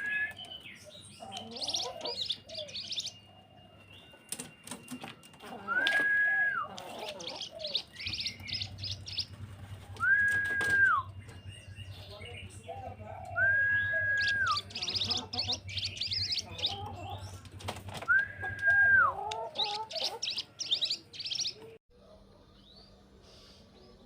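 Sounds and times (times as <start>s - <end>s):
bird trilling chatter: 6.6s - 9.5s, 11.0s - 17.4s
bird whistled note: 10.0s - 11.2s.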